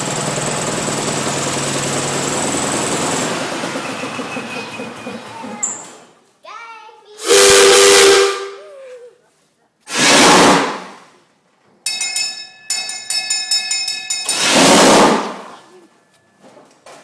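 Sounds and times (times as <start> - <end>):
locomotive bell ringing: 1.9 - 5.8, 11.8 - 14.6
steam locomotive hissing: 7.2 - 8.6, 9.9 - 10.9, 14.3 - 15.7.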